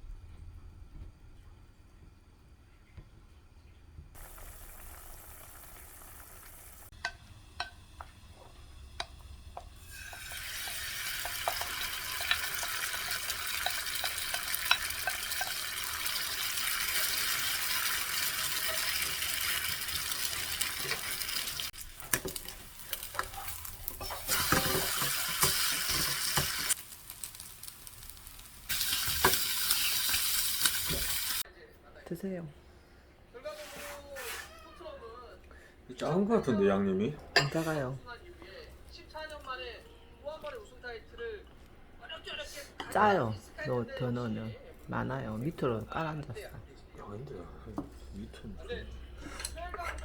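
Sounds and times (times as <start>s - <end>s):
food sizzling on a griddle: 4.2s - 31.5s, 33.5s - 34.6s.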